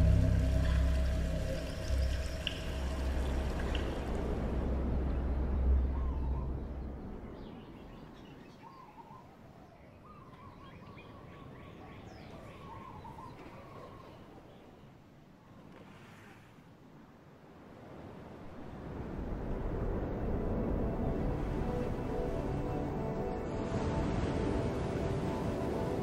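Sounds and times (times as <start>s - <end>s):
deep low rumble: 0.0s - 7.2s
faint birds calling: 5.0s - 15.0s.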